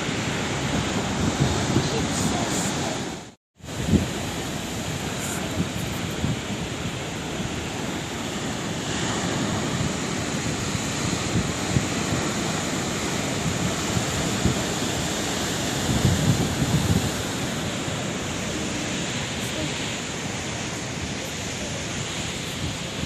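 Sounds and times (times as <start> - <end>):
sea waves breaking: 0.0 - 23.0.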